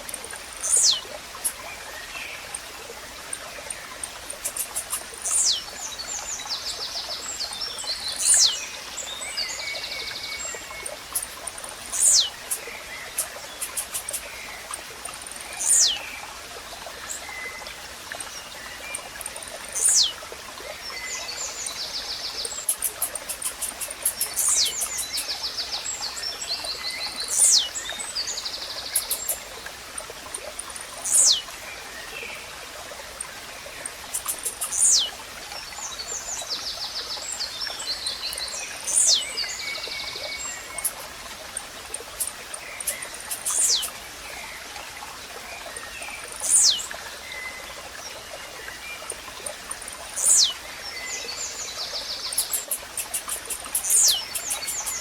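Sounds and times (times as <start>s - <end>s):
running water: 0.0s - 55.0s
small birds trilling: 0.6s - 2.4s, 3.7s - 6.3s, 7.4s - 16.0s, 19.7s - 20.2s, 22.4s - 25.6s, 27.1s - 29.6s, 30.7s - 31.5s, 33.8s - 35.2s, 37.9s - 41.2s, 41.9s - 44.0s, 46.3s - 46.9s, 49.0s - 50.6s, 52.1s - 55.0s.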